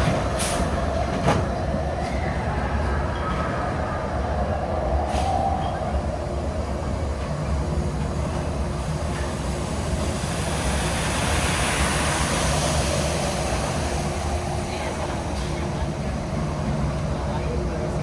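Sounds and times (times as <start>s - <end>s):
monorail rumbling inside cabin: 0.0s - 18.0s
high hiss: 9.7s - 14.7s.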